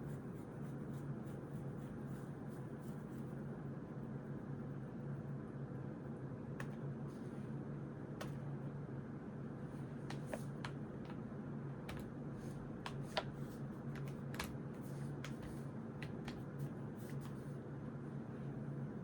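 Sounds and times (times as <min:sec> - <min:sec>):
steady low hum: 0:00.0 - 0:19.0
pen and stationery clicks: 0:12.8 - 0:16.4.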